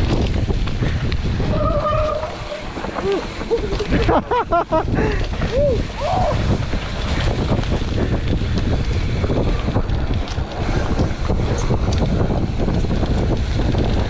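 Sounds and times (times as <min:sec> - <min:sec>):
bike knocks and rattles: 0:00.0 - 0:14.0
mountain bike rumbling on trail: 0:00.0 - 0:14.0
wind buffeting microphone: 0:00.0 - 0:14.0.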